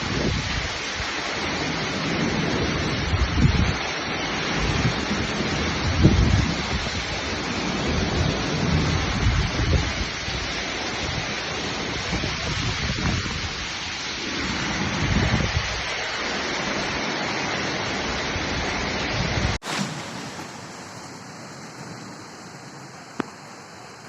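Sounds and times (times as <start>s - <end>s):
wind buffeting microphone: 0.0s - 13.8s, 14.4s - 15.9s
heavy rain and running floodwater: 0.0s - 24.0s.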